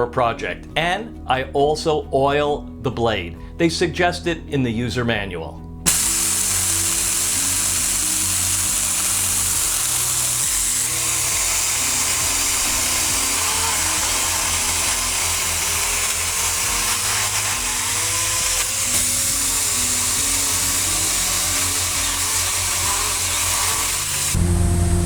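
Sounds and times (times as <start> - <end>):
background music: 0.0 - 25.0
electric chainsaw cutting branches: 5.9 - 25.0.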